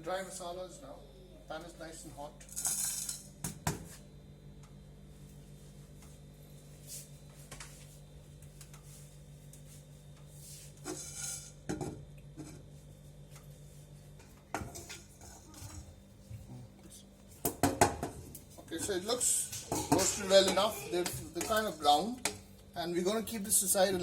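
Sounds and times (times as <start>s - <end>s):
spices roasting in a pan: 10.7s - 11.7s
utensil scraping pan: 10.8s - 11.6s.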